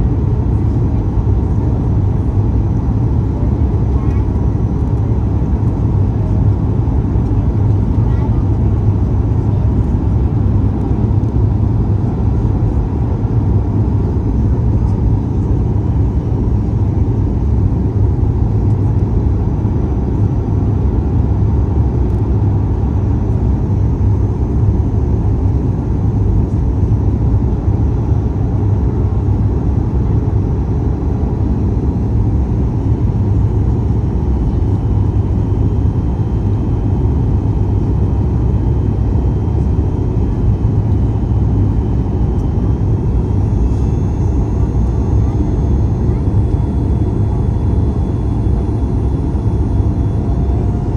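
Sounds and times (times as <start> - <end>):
aircraft cabin engine rumble: 0.0 - 50.9.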